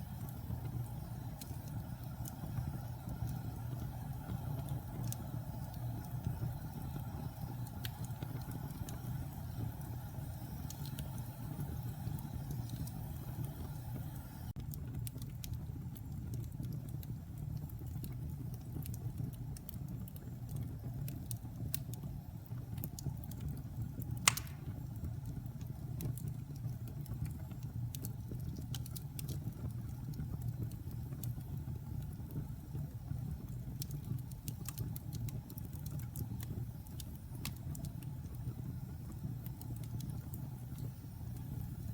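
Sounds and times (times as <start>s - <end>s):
fire crackling: 0.0s - 41.9s
fire flames rumbling: 0.0s - 41.9s
loud pop from fire: 24.2s - 24.8s.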